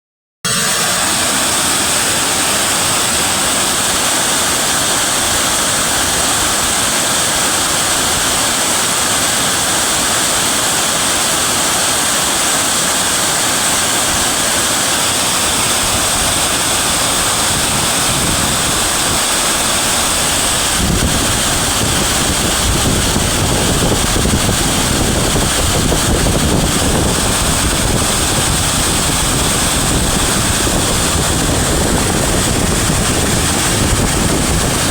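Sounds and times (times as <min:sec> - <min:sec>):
river water rushing: 0:00.7 - 0:34.9
wind buffeting microphone: 0:13.6 - 0:34.9.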